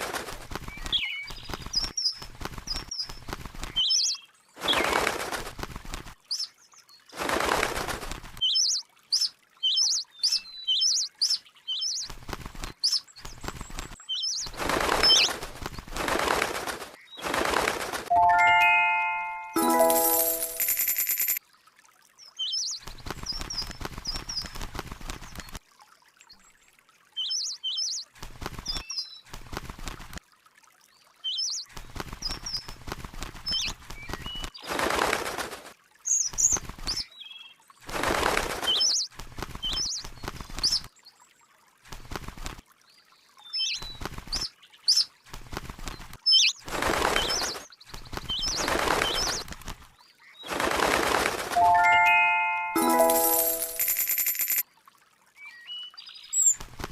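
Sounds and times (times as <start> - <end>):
wing flapping: 0.0 - 3.9, 4.6 - 6.2, 7.1 - 8.4, 12.0 - 18.1, 22.9 - 25.5, 28.2 - 30.2, 31.8 - 37.0, 37.9 - 40.9, 41.9 - 42.6, 43.8 - 44.5, 45.3 - 54.1.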